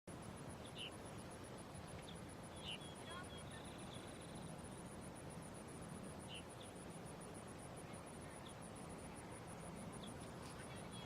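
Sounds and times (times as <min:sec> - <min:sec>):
insect chirping: 0:00.1 - 0:11.0.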